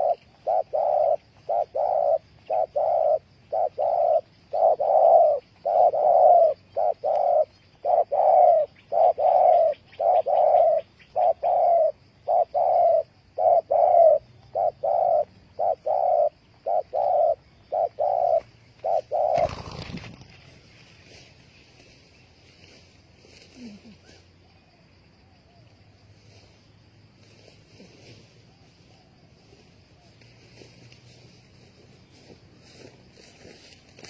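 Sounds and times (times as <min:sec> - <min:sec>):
dove cooing: 0:00.0 - 0:20.4
noisy rustle: 0:18.4 - 0:24.0.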